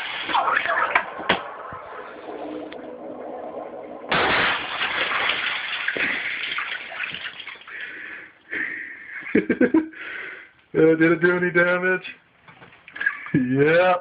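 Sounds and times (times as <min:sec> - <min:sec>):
toilet water rushing: 0:00.0 - 0:07.8
quiet watery noise: 0:00.0 - 0:14.0.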